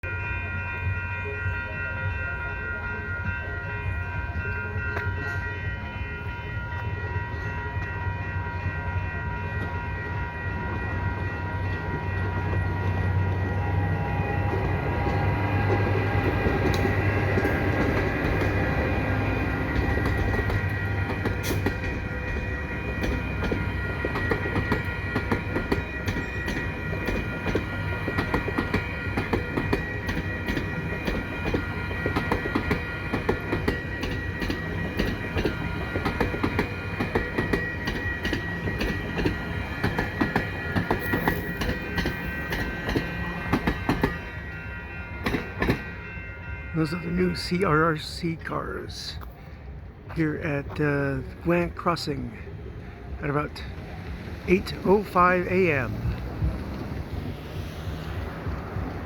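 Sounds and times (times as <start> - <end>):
crossing warning bells ringing: 0.0 - 59.0
locomotive rumble: 0.0 - 59.0
train wheels clicking over rail joints: 13.8 - 44.5, 45.2 - 46.0, 55.9 - 59.0.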